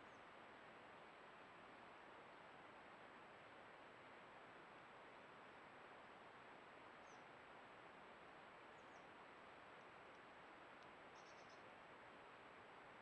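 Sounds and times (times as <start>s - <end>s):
small birds chirping: 11.1s - 11.6s.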